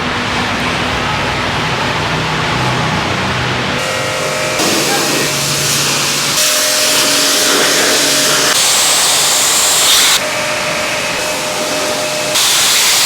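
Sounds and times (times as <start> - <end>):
water spray hissing: 3.8 - 13.0.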